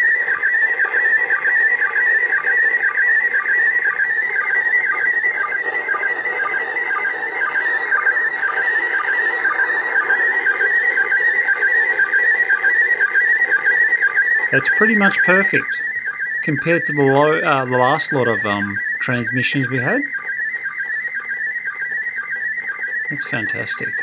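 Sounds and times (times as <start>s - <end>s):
warbling radio tone: 0.0s - 24.0s
short sync beeps: 9.5s - 24.0s.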